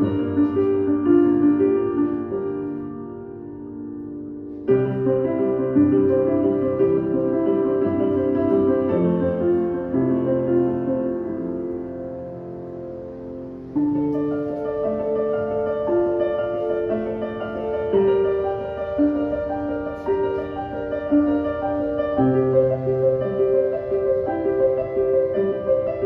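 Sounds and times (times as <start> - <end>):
slow piano piece: 0.0 - 26.0.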